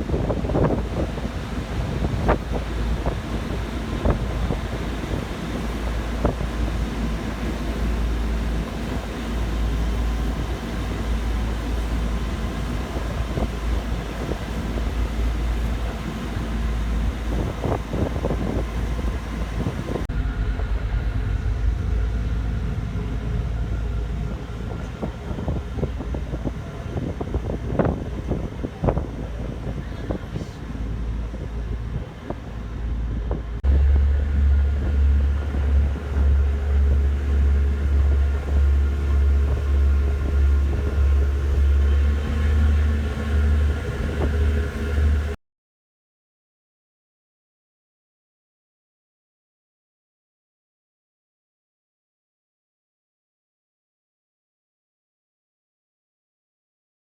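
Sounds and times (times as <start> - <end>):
ferry engine rumbling: 0.0 - 45.4
wind buffeting microphone: 0.0 - 45.4.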